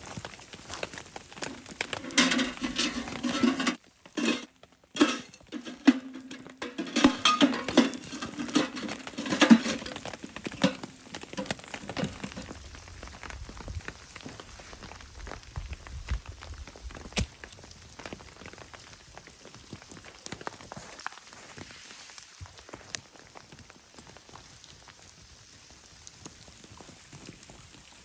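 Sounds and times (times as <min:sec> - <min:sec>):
metal utensil scraping in skillet: 0:01.9 - 0:12.3.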